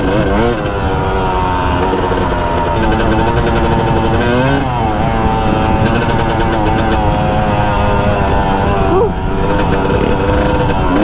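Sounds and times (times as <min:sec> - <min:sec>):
dirt bike engine running: 0:00.0 - 0:11.0
wind rumble on microphone: 0:00.0 - 0:11.0.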